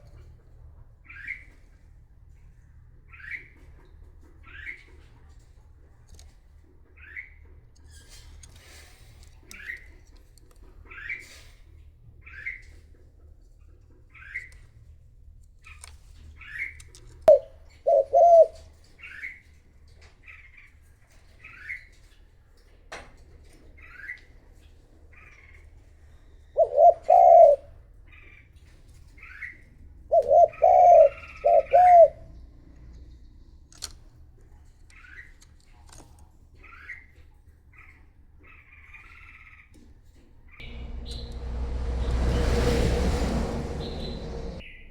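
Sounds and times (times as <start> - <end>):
dove cooing: 17.3 - 18.6, 26.6 - 27.6, 30.2 - 32.2.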